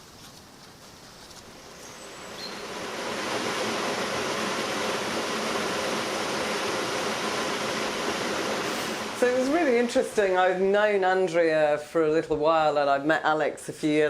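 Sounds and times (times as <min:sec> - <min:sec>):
running water rushing: 0:01.4 - 0:11.4.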